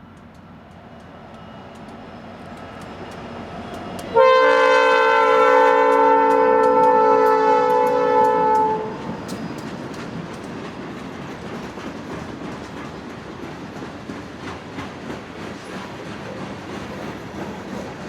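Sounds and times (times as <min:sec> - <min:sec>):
locomotive air horn chord: 0:04.1 - 0:09.1
train wheels clicking over rail joints: 0:05.7 - 0:18.0.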